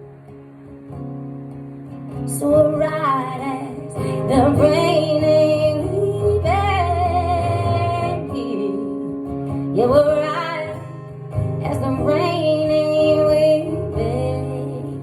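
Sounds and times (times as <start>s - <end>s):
guitar accompaniment: 0.0s - 15.0s.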